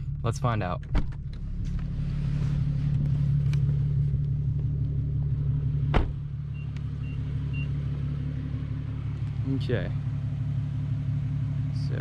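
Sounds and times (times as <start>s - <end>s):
car engine idling: 0.0s - 12.0s
car warning chime beeps: 6.5s - 7.8s.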